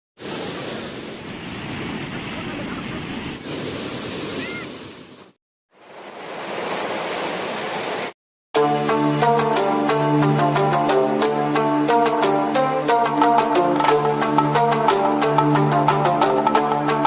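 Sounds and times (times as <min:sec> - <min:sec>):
music with a steady beat: 0:08.6 - 0:17.0.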